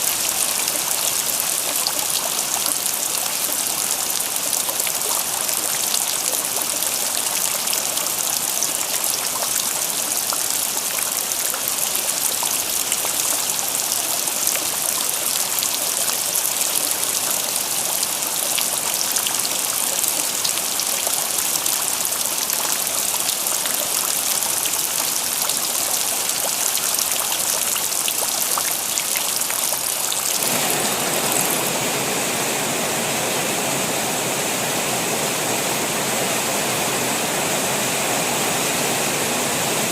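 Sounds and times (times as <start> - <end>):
rain drops pattering: 0.0 - 31.8
rainwater running: 0.0 - 39.9.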